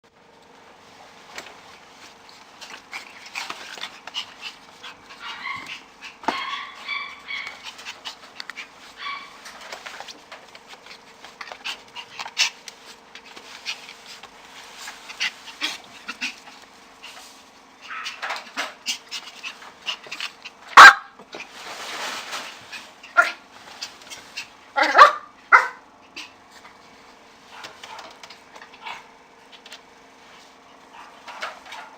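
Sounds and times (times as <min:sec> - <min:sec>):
puppies barking: 0:02.8 - 0:09.9, 0:17.8 - 0:21.2, 0:24.3 - 0:26.4
puppies yipping and whimpering: 0:02.9 - 0:09.6, 0:17.8 - 0:20.1.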